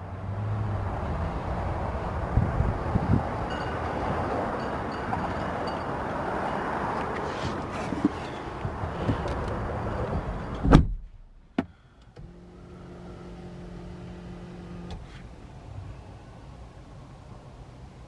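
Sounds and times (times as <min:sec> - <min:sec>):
car door thudding shut: 0:07.4 - 0:11.7.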